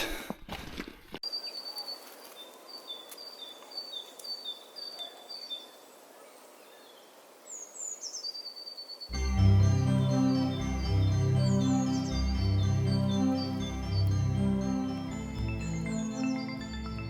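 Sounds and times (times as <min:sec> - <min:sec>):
songbird two-note song: 0:09.1 - 0:17.0.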